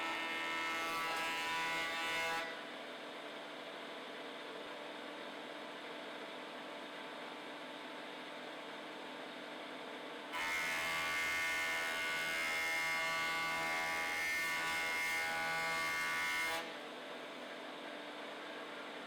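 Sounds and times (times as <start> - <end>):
wood planing machine whine: 0.0 - 2.6, 10.4 - 16.8.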